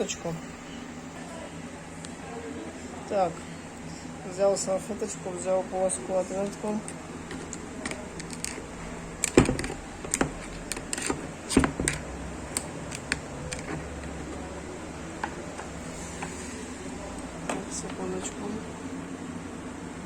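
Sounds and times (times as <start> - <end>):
metal parts clicking: 7.3 - 14.4.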